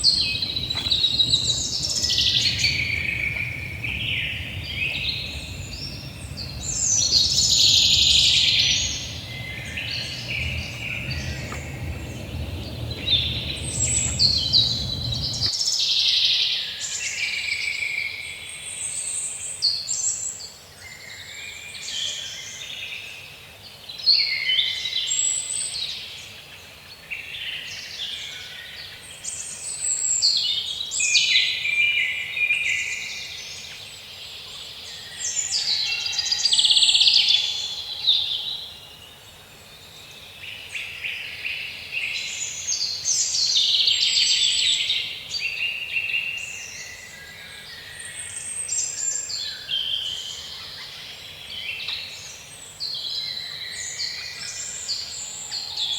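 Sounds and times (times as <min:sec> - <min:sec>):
songbirds singing: 0:00.0 - 0:15.5.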